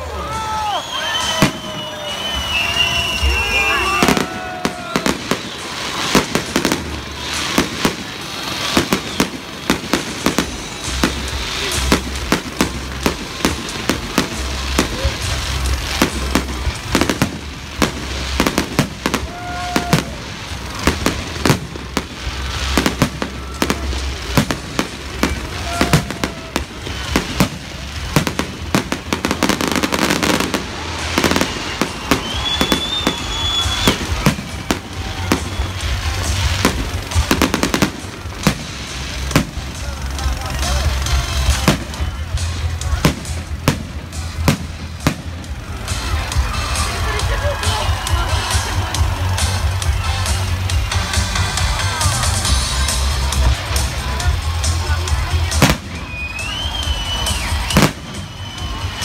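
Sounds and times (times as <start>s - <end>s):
fireworks bursting: 0.0s - 59.0s
continuous low rumble: 4.2s - 59.0s.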